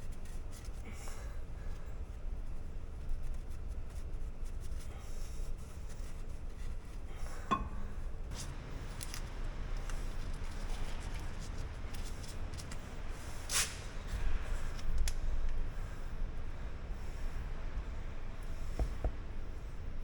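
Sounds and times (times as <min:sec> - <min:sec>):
metallic tink: 0:07.5 - 0:07.9.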